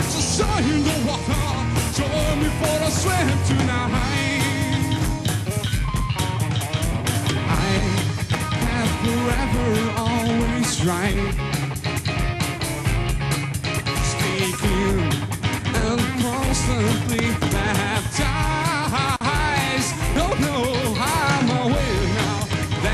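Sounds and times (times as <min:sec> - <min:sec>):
wavering lead melody: 0:00.0 - 0:10.6
drums: 0:00.0 - 0:22.9
electric guitar: 0:00.0 - 0:22.9.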